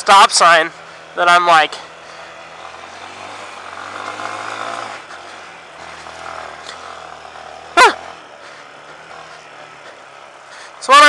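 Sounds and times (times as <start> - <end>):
motorcycle engine running at low revs: 0.0 - 11.0.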